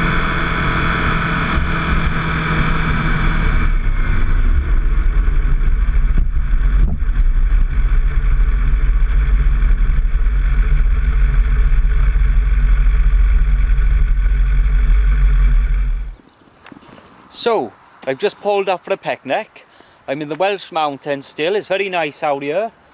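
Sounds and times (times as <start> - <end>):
motorcycle engine idling: 0.0 - 16.2.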